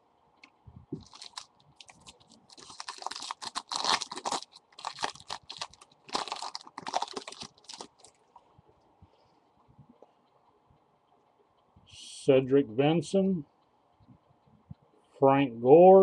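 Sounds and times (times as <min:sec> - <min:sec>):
cards crinkling and rustling: 0:01.0 - 0:08.2.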